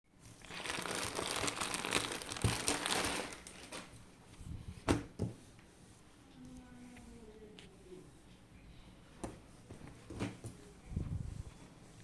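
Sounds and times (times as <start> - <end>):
packaging crinkling and rustling: 0.2 - 4.0.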